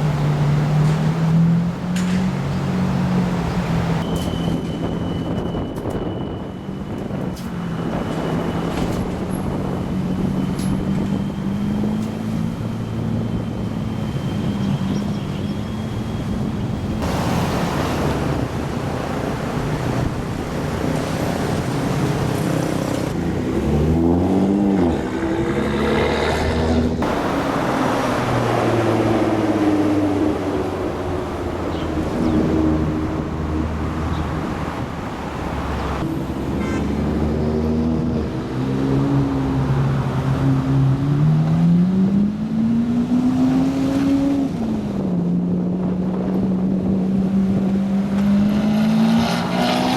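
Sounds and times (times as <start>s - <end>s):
car engines running: 0.0s - 49.9s
engine revving: 21.4s - 34.7s, 35.9s - 49.9s.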